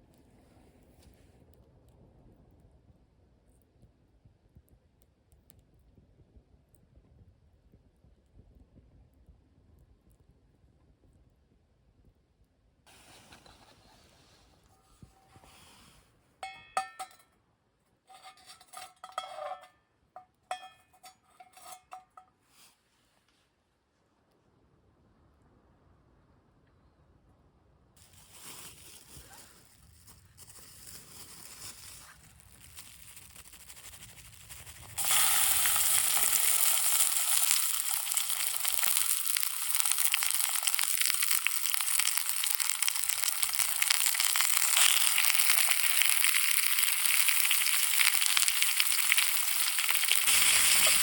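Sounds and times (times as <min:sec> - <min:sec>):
faint handling sounds: 0:12.9 - 0:17.3, 0:28.0 - 0:40.1
food sizzling in a hot pan: 0:31.6 - 0:51.0.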